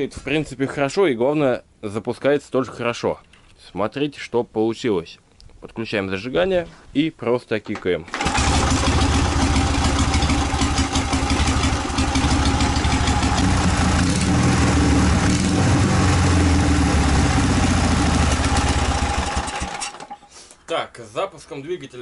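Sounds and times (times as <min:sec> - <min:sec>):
motorcycle engine idling: 0:08.4 - 0:19.8.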